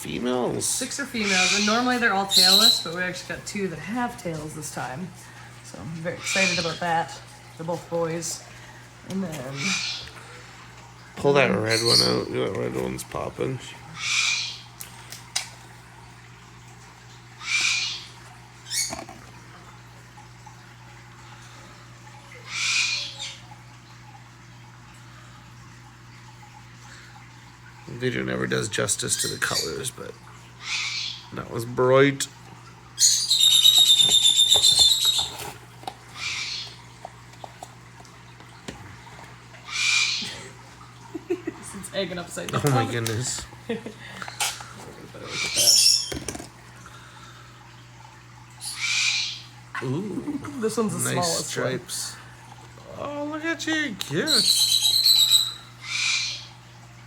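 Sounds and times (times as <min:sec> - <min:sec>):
low electrical hum: 0:00.0 - 0:57.0
harsh bird squawks: 0:01.2 - 0:02.9, 0:06.2 - 0:06.9, 0:09.5 - 0:10.2, 0:14.0 - 0:14.7, 0:17.4 - 0:19.0, 0:22.4 - 0:23.4, 0:30.6 - 0:31.3, 0:33.0 - 0:35.5, 0:36.2 - 0:36.8, 0:39.6 - 0:40.4, 0:45.2 - 0:46.2, 0:48.6 - 0:49.6, 0:54.3 - 0:56.6.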